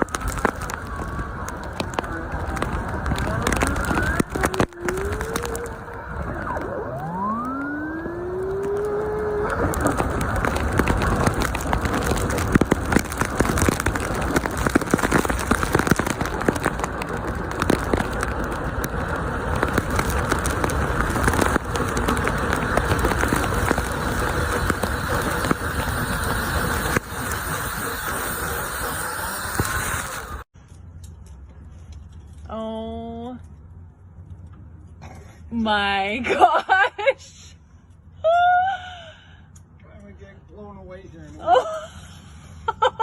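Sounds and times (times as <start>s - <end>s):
debris rattling and crackling: 0.0s - 35.0s
motor spinning up: 3.6s - 12.4s, 19.6s - 30.4s.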